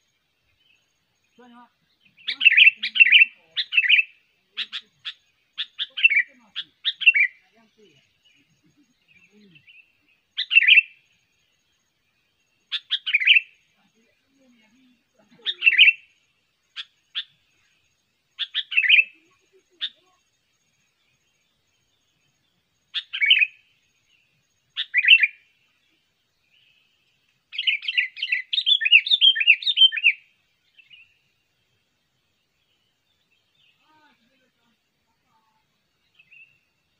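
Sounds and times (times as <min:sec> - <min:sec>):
bird calling: 0:01.5 - 0:11.0, 0:12.6 - 0:13.6, 0:15.2 - 0:17.7, 0:18.4 - 0:20.2, 0:22.9 - 0:23.8, 0:24.7 - 0:25.5, 0:27.5 - 0:31.2.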